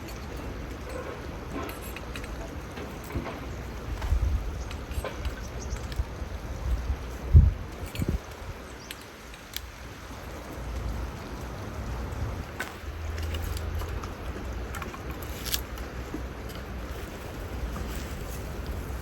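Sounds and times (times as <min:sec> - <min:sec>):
mountain stream flowing: 0:00.0 - 0:19.0
wind buffeting microphone: 0:02.6 - 0:09.0, 0:09.7 - 0:19.0.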